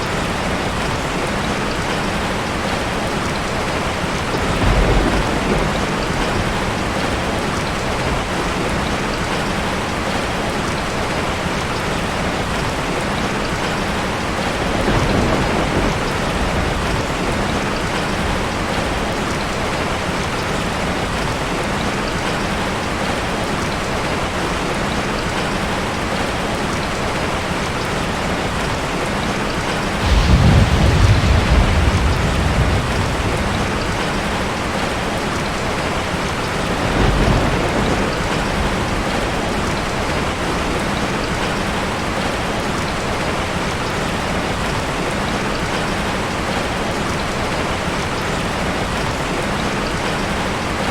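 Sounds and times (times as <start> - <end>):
steady rain: 0.0 - 50.9
low rolls of thunder: 4.2 - 9.9, 14.4 - 19.9, 29.6 - 41.6.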